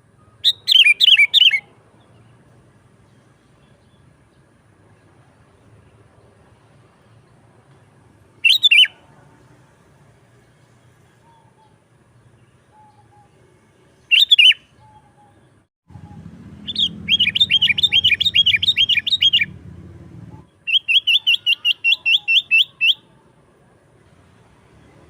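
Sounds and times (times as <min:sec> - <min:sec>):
bird chirping: 0:00.2 - 0:07.4, 0:08.4 - 0:09.0, 0:10.4 - 0:19.6, 0:20.3 - 0:23.2
low background rumble: 0:15.9 - 0:20.7.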